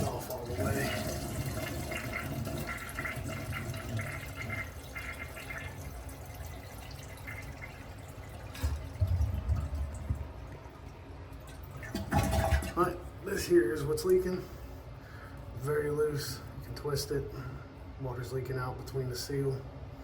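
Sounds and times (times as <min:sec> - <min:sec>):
water running and trickling: 0:00.0 - 0:12.5.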